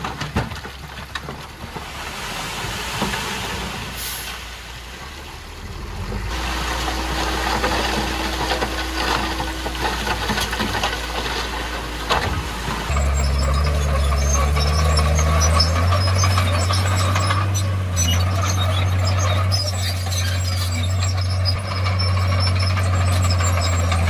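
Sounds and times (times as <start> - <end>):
bulldozer diesel engine running: 0.0 - 24.0
steel tracks squealing and clanking: 6.3 - 24.0.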